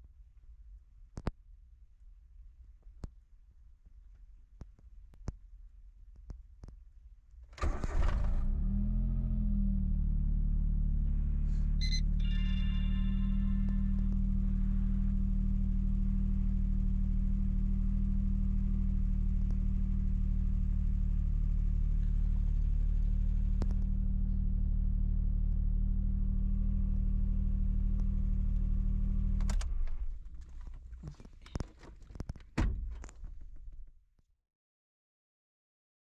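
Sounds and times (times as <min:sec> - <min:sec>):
car engine idling: 0:07.6 - 0:31.8.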